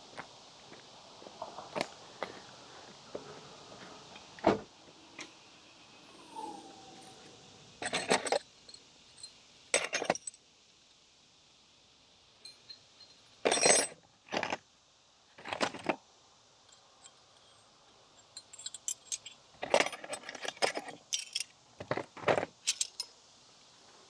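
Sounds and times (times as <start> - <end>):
metal hand tools clinking: 7.8 - 10.4, 12.4 - 14.0, 16.7 - 21.5, 22.7 - 23.1.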